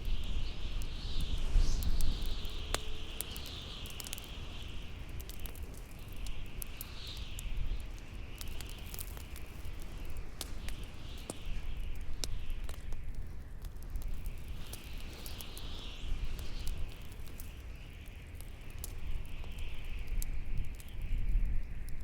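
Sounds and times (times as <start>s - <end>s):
wind howling: 0.0s - 13.4s
bonfire crackling and popping: 0.0s - 22.0s.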